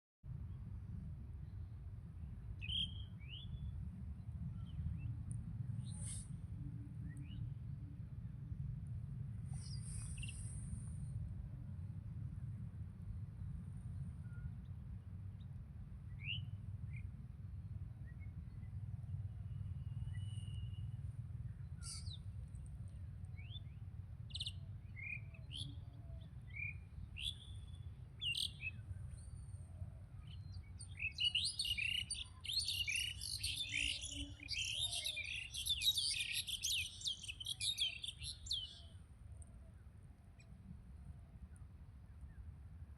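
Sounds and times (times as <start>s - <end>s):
low steady rumble: 3.5s - 25.0s
small birds chirping: 26.5s - 29.5s, 30.2s - 38.9s.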